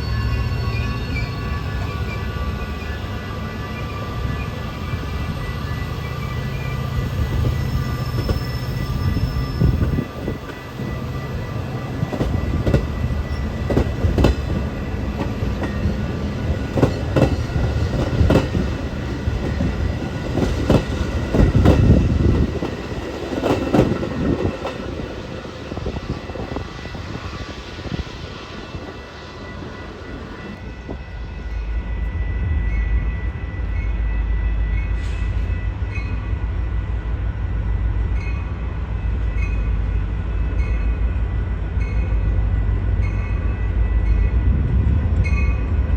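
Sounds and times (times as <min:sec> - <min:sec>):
heavy train rumble: 0:00.0 - 0:45.9
train wheels clicking on rail joints: 0:07.1 - 0:31.0.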